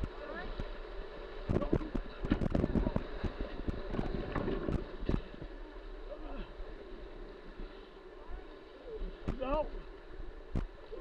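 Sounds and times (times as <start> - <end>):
wind on microphone: 1.5 - 5.2.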